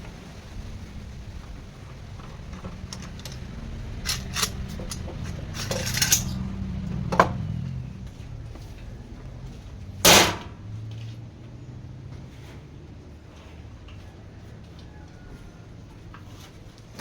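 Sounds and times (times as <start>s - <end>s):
steady low hum: 0.0s - 10.7s
metal pieces clinking: 2.5s - 6.6s.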